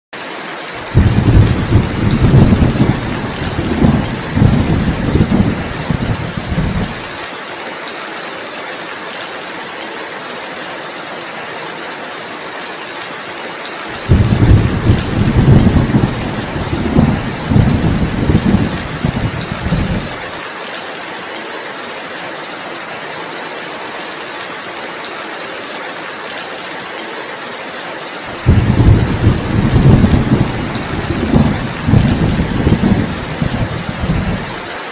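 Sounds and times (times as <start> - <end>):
heavy rain: 0.2 - 34.9
thunder rumbling: 0.8 - 7.1, 13.9 - 20.3, 28.3 - 34.7.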